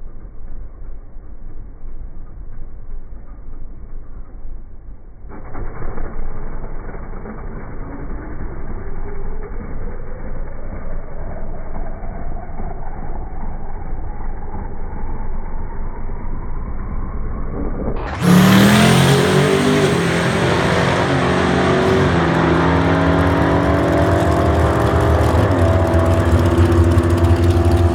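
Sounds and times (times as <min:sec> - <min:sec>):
pickup truck engine running: 0:18.0 - 0:27.9.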